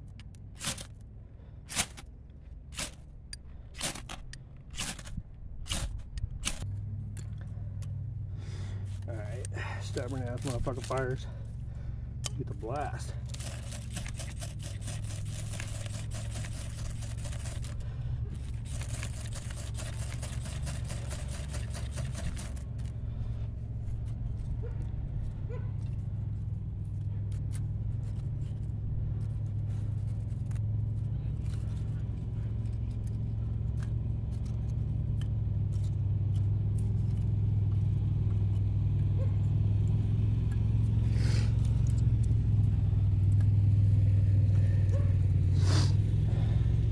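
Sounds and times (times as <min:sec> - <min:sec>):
fire low rumble: 0:04.4 - 0:13.6, 0:22.5 - 0:35.0.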